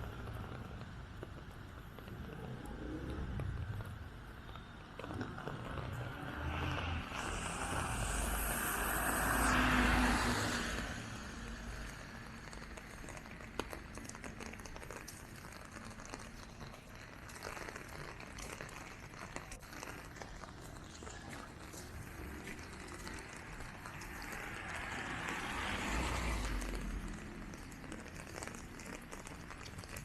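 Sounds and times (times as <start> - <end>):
street ambience: 0.0 - 30.0
car passing on wet road: 2.0 - 16.4, 19.6 - 30.0
small ticks: 10.4 - 30.0.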